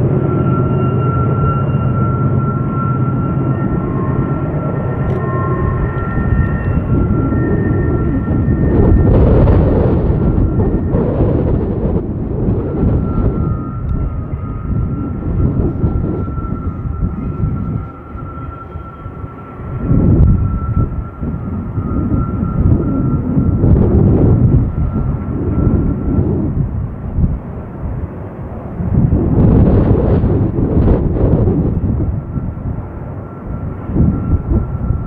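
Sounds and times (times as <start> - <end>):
high-pitched whine: 0.0 - 35.0
freight train rumbling: 3.3 - 35.0.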